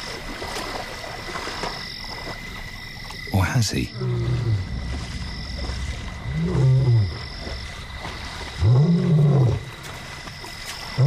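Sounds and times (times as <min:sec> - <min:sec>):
lion roaring: 0:03.9 - 0:09.8.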